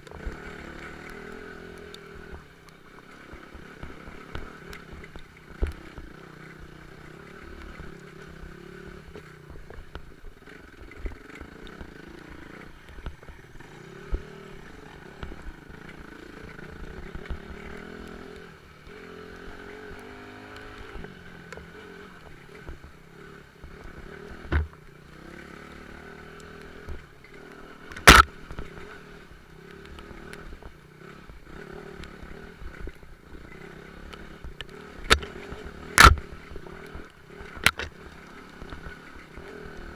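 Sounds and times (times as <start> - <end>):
off-road motorcycle engine: 0.0 - 39.9.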